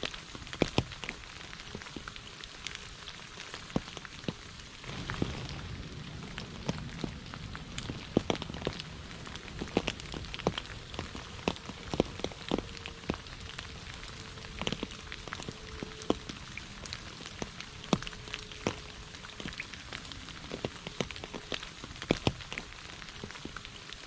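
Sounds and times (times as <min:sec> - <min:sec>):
rain hiss: 0:00.0 - 0:24.0
raindrops tapping a hard surface: 0:00.0 - 0:24.0.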